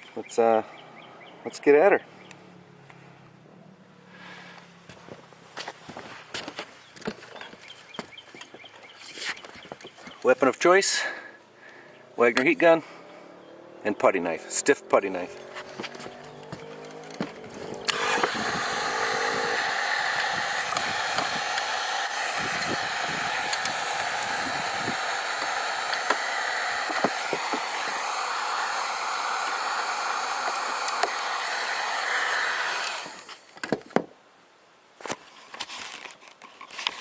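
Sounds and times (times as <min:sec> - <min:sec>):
sharp clicks: 0:15.3 - 0:28.2, 0:30.4 - 0:31.8
heat gun running: 0:15.3 - 0:33.4.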